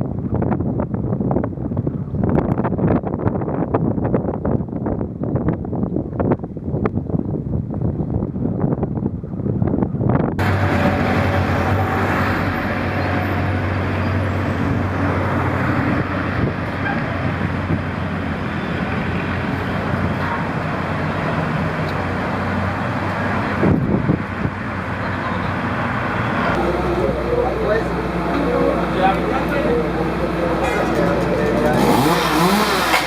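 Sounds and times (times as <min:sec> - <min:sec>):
road noise: 0:00.0 - 0:33.0
vehicle engine hum: 0:00.0 - 0:33.0.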